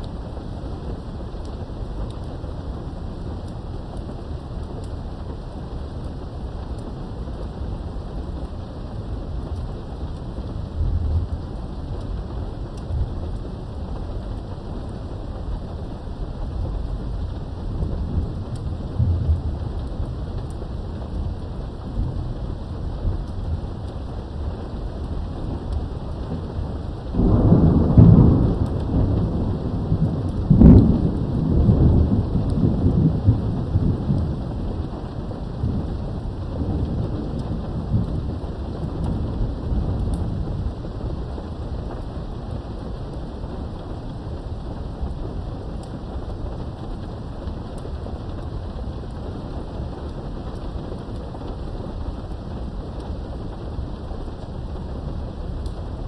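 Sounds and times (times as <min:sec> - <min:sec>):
steady rain: 0:00.0 - 0:56.0
thunder rumbling: 0:00.0 - 0:56.0
sharp thunder clap: 0:27.2 - 0:34.4.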